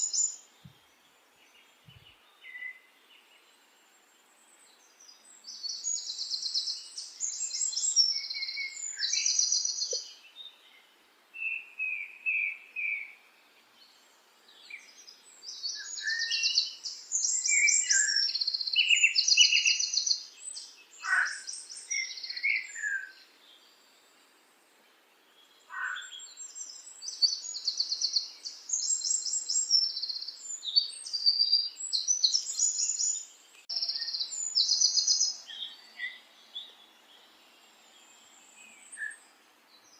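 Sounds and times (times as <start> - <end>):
songbird trilling and chirping: 0.0 - 0.7, 1.4 - 3.5, 4.8 - 13.2, 13.8 - 23.8, 25.3 - 39.9.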